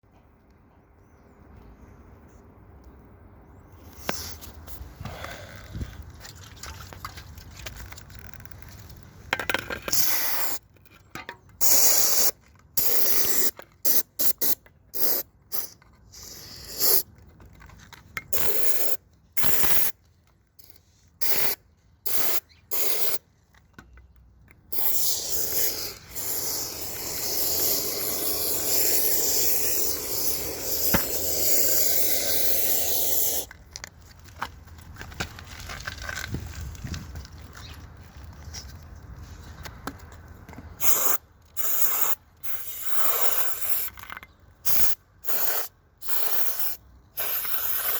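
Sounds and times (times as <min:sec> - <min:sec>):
pressurised spray hissing: 0:24.7 - 0:33.5.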